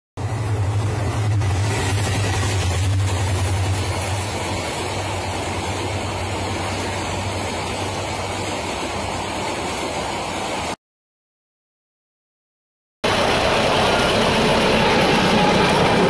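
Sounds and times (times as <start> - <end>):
diesel locomotive hum: 0.2 - 10.8
train coaches rolling on rails: 0.2 - 10.8.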